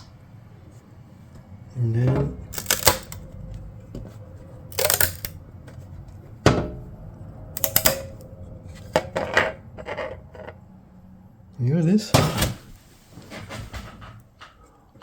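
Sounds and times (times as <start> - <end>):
metal plate clicks and clatters: 2.5 - 3.3, 4.7 - 5.4, 7.6 - 8.2.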